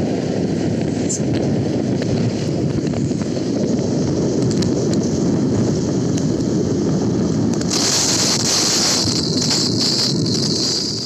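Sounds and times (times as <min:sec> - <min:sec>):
loud high hiss: 0:07.6 - 0:11.0.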